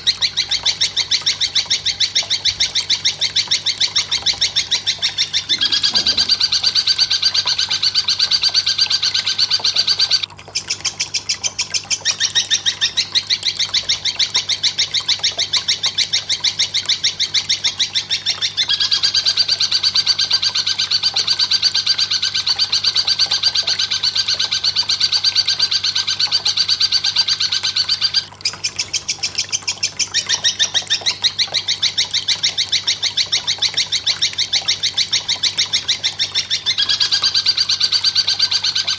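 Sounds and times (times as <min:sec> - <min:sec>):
high-pitched bird trill: 0:05.4 - 0:10.2.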